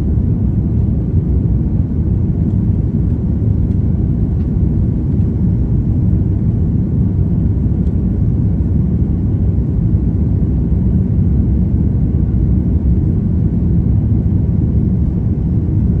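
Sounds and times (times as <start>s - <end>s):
airliner engines rumbling: 0.0s - 16.0s.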